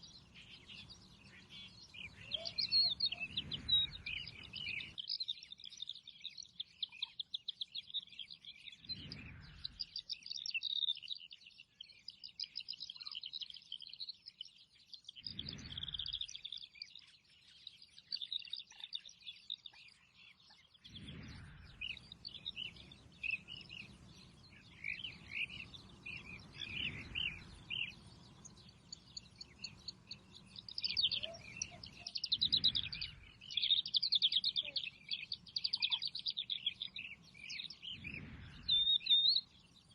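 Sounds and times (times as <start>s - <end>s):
small birds chirping: 0.0s - 39.9s
low rumble: 8.9s - 9.8s, 20.9s - 27.9s, 37.9s - 38.7s.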